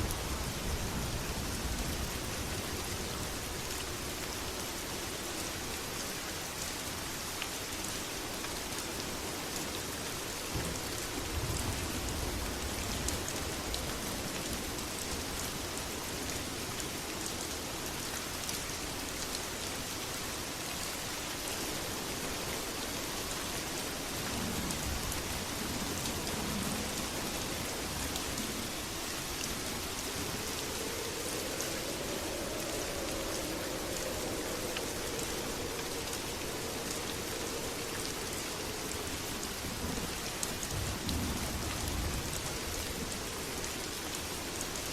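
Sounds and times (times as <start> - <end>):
heavy rain falling: 0.0 - 44.9
distant thunder rumble: 26.4 - 42.4.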